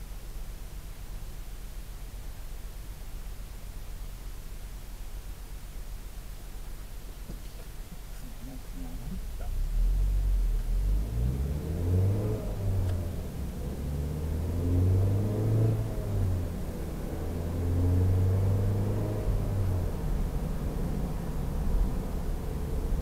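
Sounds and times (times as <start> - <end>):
car engine accelerating: 8.8 - 23.0.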